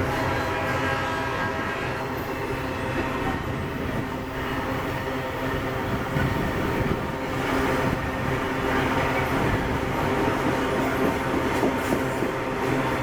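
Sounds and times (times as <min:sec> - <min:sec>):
freight train rumble: 0:00.0 - 0:13.0
locomotive engine drone: 0:00.0 - 0:13.0
rail clatter: 0:05.9 - 0:13.0.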